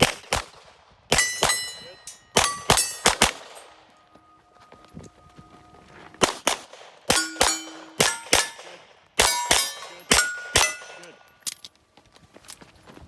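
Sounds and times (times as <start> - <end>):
rapid pistol fire: 0.0 - 1.5
steel target clang and ring: 1.1 - 4.4, 7.1 - 11.4.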